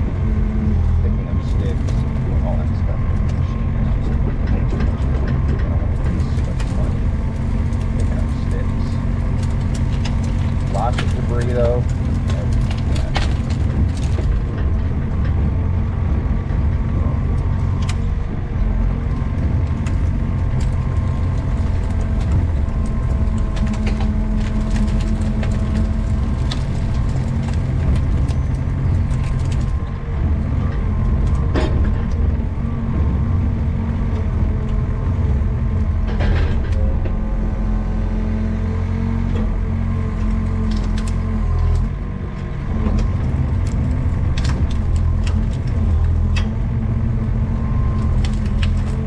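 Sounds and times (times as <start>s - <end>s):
excavator engine running: 0.0s - 49.0s
sharp knocks and cracks: 4.6s - 18.0s, 19.2s - 30.0s, 39.3s - 49.0s.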